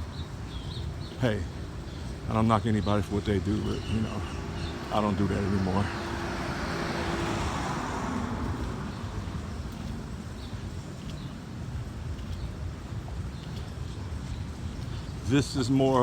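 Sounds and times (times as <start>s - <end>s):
street traffic rumble: 0.0s - 16.0s
car passing close by: 4.1s - 10.2s.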